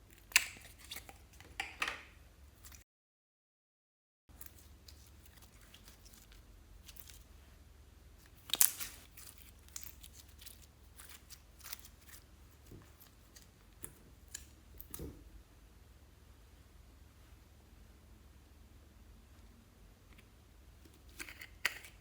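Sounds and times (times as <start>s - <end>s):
slime clicking and crackling: 8.2s - 15.0s.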